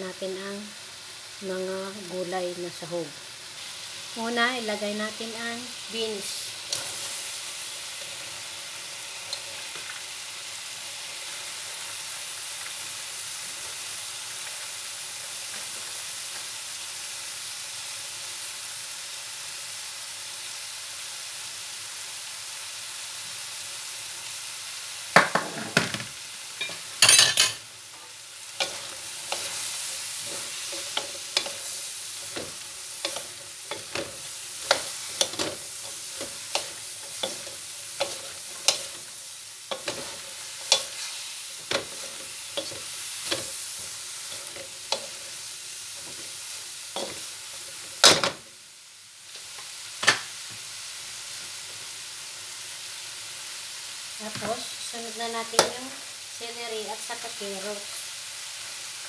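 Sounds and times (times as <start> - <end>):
beans sizzling in hot oil: 0.0 - 59.0
wooden spatula scraping wok: 27.9 - 45.3.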